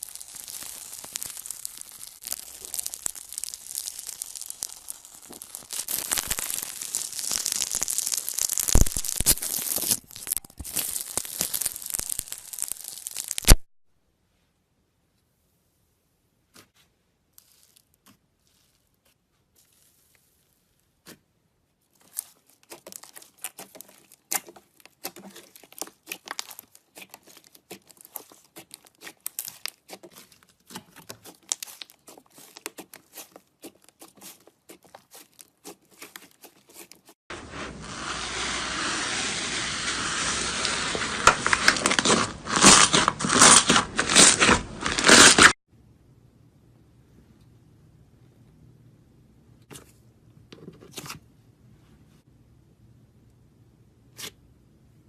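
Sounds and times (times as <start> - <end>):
slime crackling and popping: 0.0 - 13.7, 22.0 - 37.7, 39.5 - 45.6.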